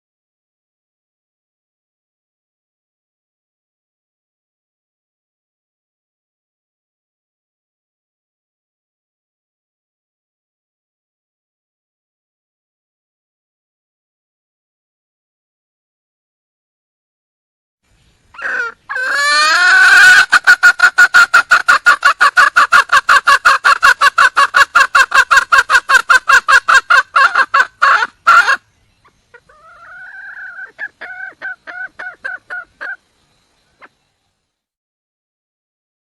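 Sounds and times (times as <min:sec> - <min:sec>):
hen clucking call: 0:18.3 - 0:33.0.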